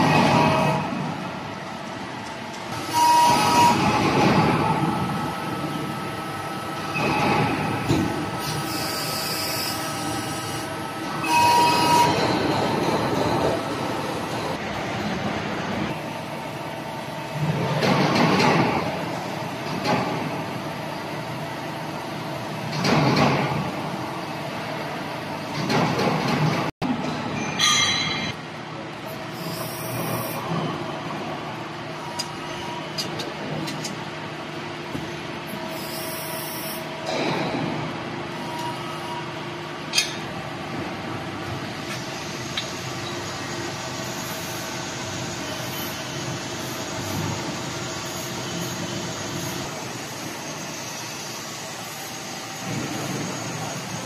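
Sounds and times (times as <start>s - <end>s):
hydraulic press machine hum: 0.0s - 54.0s.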